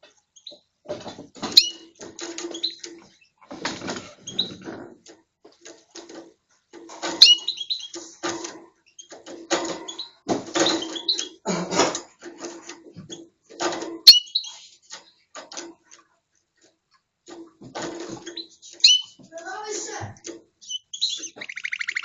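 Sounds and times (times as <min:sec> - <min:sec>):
canary chirping: 0:00.3 - 0:00.7, 0:01.5 - 0:03.4, 0:04.0 - 0:04.6, 0:07.0 - 0:11.4, 0:14.0 - 0:15.0, 0:18.2 - 0:19.2, 0:20.6 - 0:22.0.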